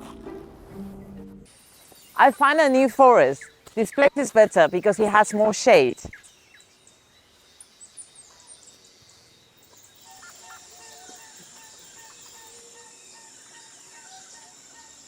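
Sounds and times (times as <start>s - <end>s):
birds chirping: 0.0s - 15.0s
high insect buzz: 9.8s - 15.0s.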